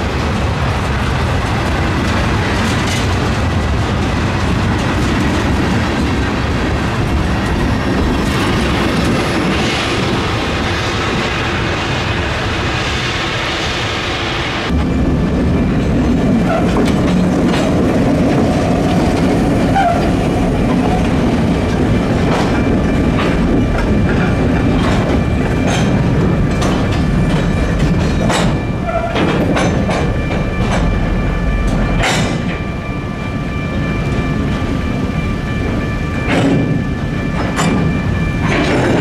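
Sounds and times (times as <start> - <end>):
wheels clanking over rail joints: 0.0 - 11.6, 14.7 - 32.7, 34.0 - 39.0
diesel locomotive engine droning: 0.0 - 39.0
freight cars rumbling: 0.0 - 39.0.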